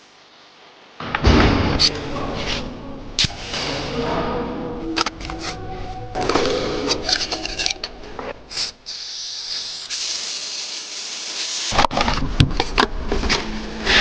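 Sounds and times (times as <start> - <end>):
steady high hiss: 8.5 - 11.8.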